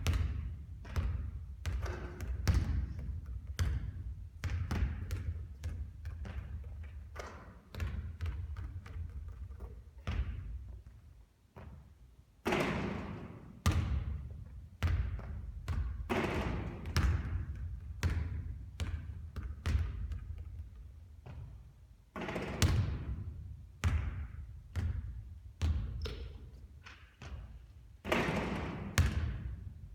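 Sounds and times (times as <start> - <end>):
basketball bouncing on hard court: 0.0 - 29.9.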